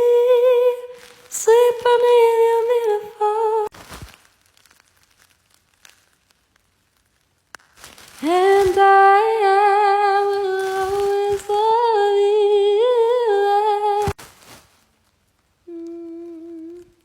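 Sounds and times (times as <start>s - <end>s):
woman humming: 15.7s - 17.0s.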